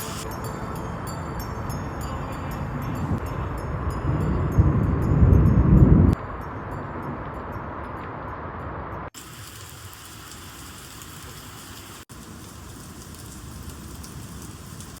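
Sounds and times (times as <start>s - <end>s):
heavy rain falling: 9.2s - 15.0s.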